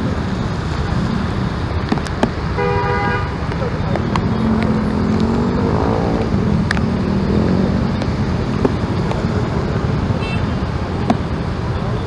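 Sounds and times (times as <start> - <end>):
road traffic noise: 0.0 - 12.0
vehicle engine revving: 3.3 - 11.9.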